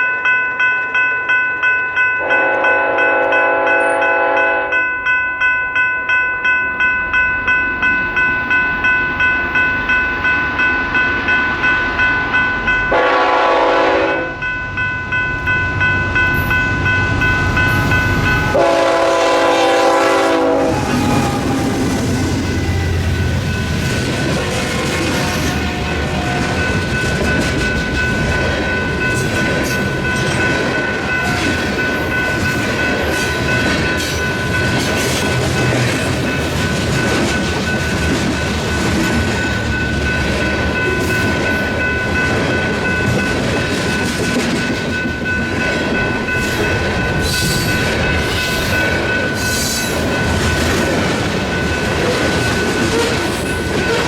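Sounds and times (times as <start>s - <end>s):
train cars rumbling on rails: 7.4s - 54.0s
high-pitched tones: 13.8s - 24.4s
train wheels clickety-clack: 20.5s - 54.0s.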